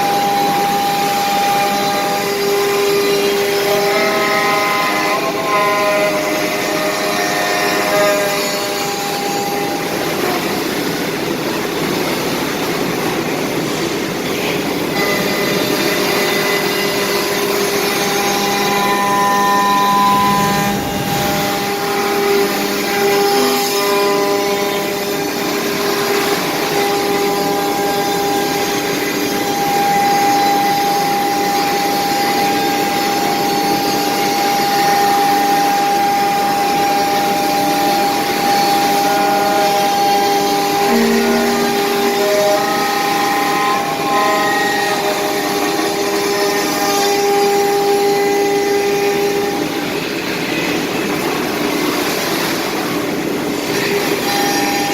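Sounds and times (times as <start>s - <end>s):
cnc router spindle whine: 0.0s - 54.9s.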